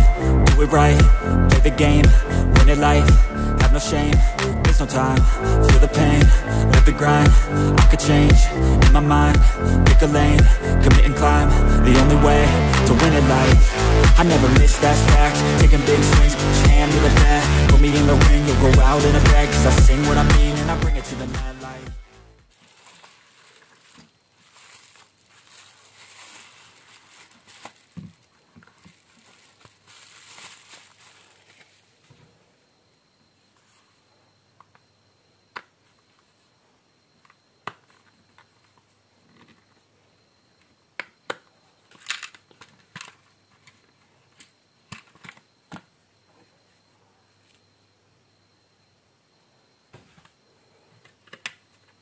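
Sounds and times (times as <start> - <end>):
rustling and crinkling: 22.4 - 32.5, 41.8 - 46.5.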